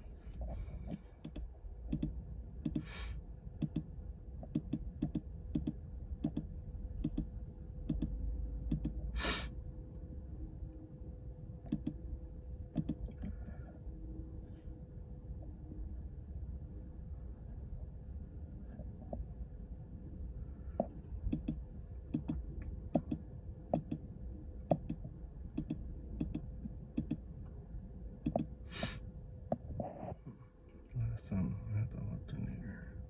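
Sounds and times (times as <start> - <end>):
faint steady hum: 0.0 - 33.0
light clicks and taps: 3.6 - 7.3, 24.7 - 27.2.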